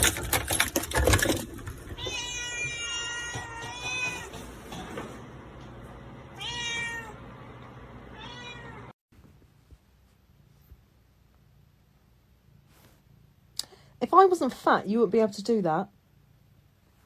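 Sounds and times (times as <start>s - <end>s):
cat meowing: 2.0s - 4.4s, 6.3s - 7.2s, 8.1s - 8.9s.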